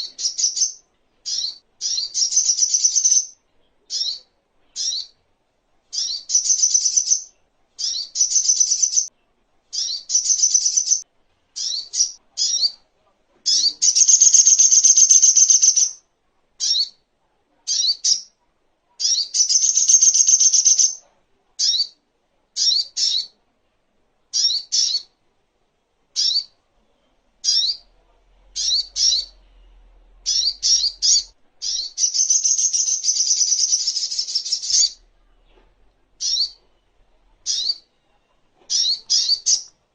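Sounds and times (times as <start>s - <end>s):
bird chirping and trilling: 0.0s - 5.2s, 5.9s - 9.1s, 9.7s - 11.0s, 11.6s - 12.8s, 13.5s - 16.0s, 16.6s - 17.0s, 17.7s - 18.3s, 19.0s - 21.0s, 21.6s - 22.0s, 22.6s - 23.4s, 24.3s - 25.2s, 26.2s - 26.6s, 27.4s - 27.9s, 28.6s - 29.4s, 30.2s - 35.1s, 36.2s - 36.6s, 37.4s - 39.8s.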